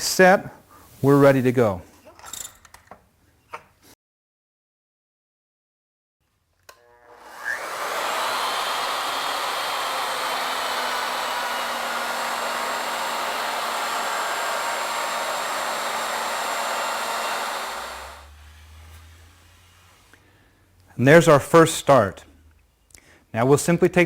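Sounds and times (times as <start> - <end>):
router motor cutting wood: 6.7 - 19.6.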